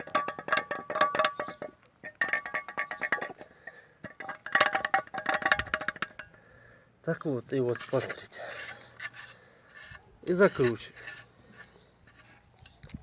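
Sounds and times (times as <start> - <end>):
metallic knocking and clinking: 0.0 - 6.4.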